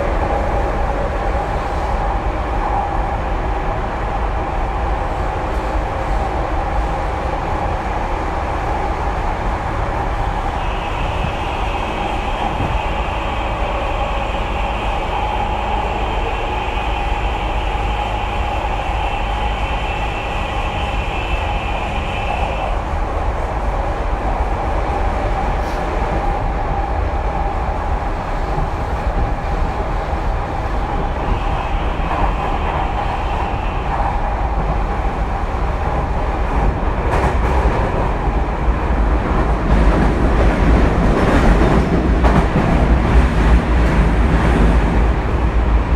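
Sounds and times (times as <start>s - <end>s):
train wheels rumbling on rail: 0.0s - 45.9s
high steady whine: 9.8s - 25.0s.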